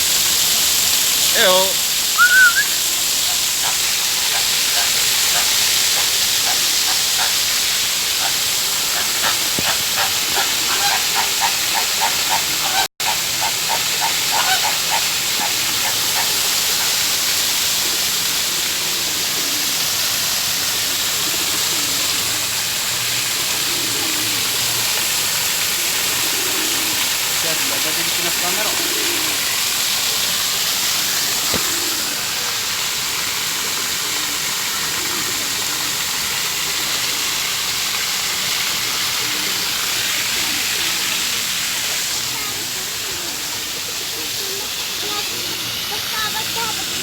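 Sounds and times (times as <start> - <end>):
steady rushing hiss: 0.0 - 47.0
birds calling: 1.2 - 37.4, 38.2 - 47.0.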